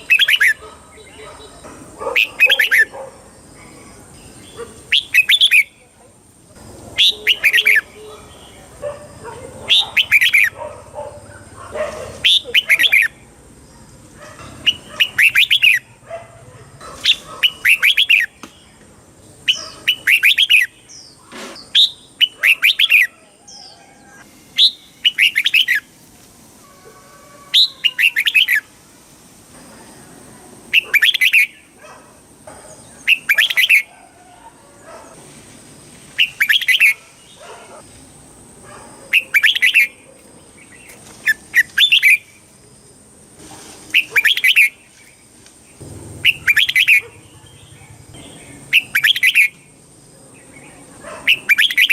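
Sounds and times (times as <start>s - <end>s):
bulbul whistled song: 14.7s - 15.9s, 24.6s - 25.9s, 39.2s - 39.9s, 46.2s - 47.1s, 48.7s - 49.6s.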